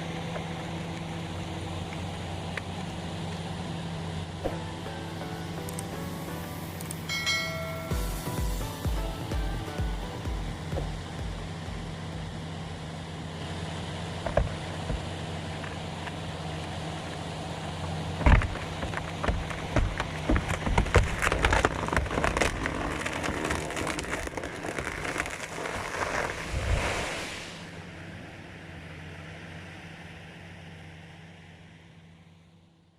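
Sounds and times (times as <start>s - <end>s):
branches splintering: 0.0s - 12.7s, 14.0s - 27.8s
chainsaw idling: 0.0s - 25.8s
tree cracking and crashing down: 4.4s - 12.5s, 17.7s - 27.8s
heavy thuds: 7.2s - 12.4s.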